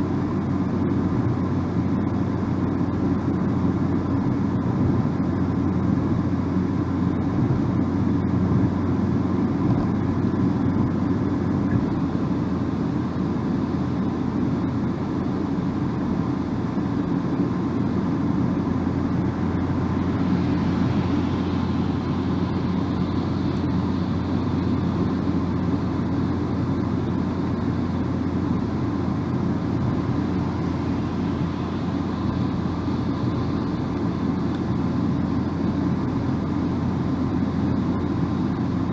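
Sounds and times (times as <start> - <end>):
car driving tyres and engine rumble: 0.0 - 38.9.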